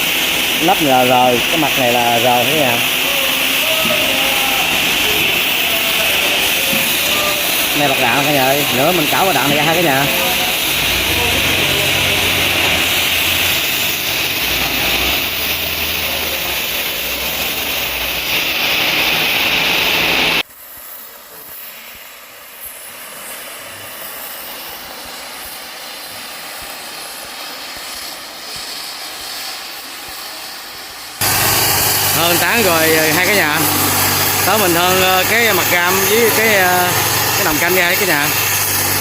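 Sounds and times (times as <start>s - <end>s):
gas torch hissing: 0.0s - 39.0s.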